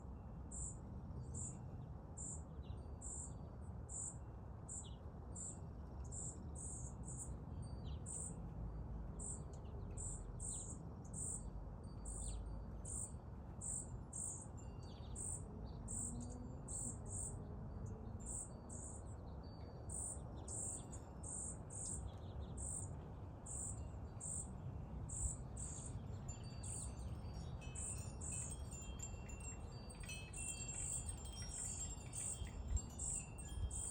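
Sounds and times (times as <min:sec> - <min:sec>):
cricket chirping: 0:08.1 - 0:08.4, 0:09.2 - 0:17.4, 0:18.3 - 0:19.1, 0:19.9 - 0:24.5, 0:25.1 - 0:33.9.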